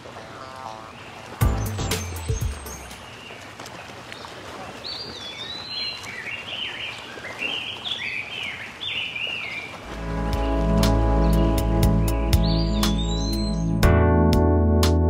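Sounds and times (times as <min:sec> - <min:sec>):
outdoor background noise: 0:00.0 - 0:13.2
bird chirping: 0:01.0 - 0:03.4, 0:04.2 - 0:09.7, 0:10.3 - 0:13.8.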